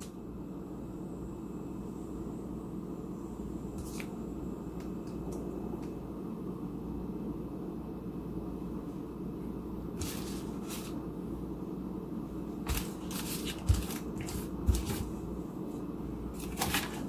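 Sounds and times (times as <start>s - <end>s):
steady low hum: 0.0s - 17.0s
rustling and scraping: 10.0s - 11.0s, 12.7s - 15.2s, 16.3s - 17.0s.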